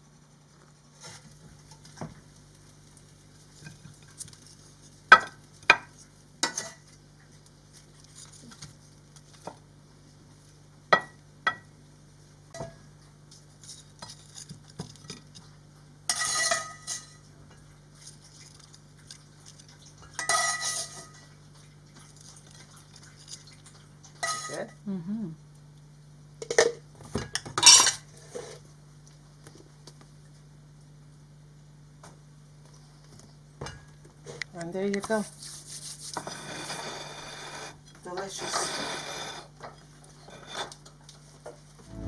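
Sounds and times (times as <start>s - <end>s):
cutlery clinking on dishes: 16.1s - 17.7s, 20.1s - 21.1s, 24.2s - 24.6s, 27.6s - 28.0s
faint low hum: 41.8s - 42.0s.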